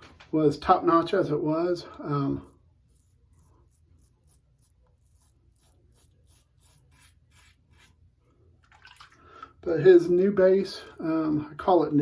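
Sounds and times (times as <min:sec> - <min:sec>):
razor scraping stubble: 0:02.3 - 0:08.0.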